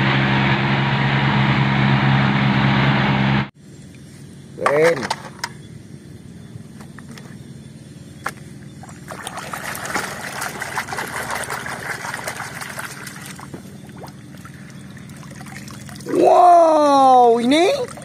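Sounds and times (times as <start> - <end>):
water sloshing in a tub: 8.7 - 18.0
water dripping and trickling: 8.9 - 16.1.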